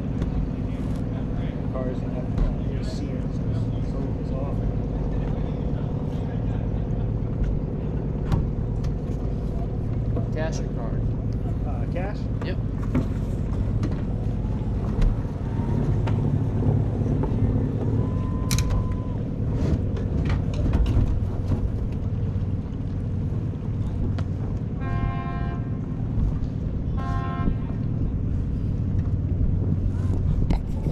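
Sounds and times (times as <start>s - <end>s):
low motor rumble: 0.0s - 30.9s
knocks and clicks: 18.5s - 18.8s.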